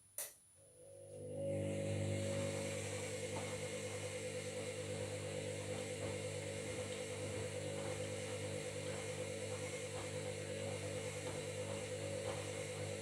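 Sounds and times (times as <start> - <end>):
washing machine motor humming: 1.0 - 13.0.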